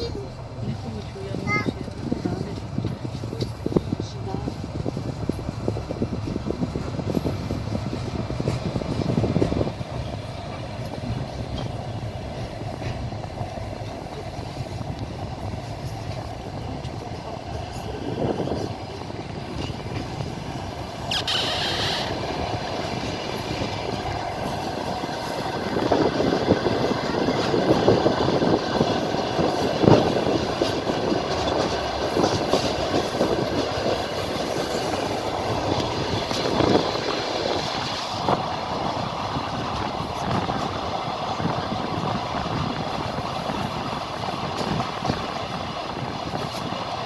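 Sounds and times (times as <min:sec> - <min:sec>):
train wheels clattering over rail joints: 0:00.0 - 0:47.0
high wheel squeal: 0:20.6 - 0:24.6.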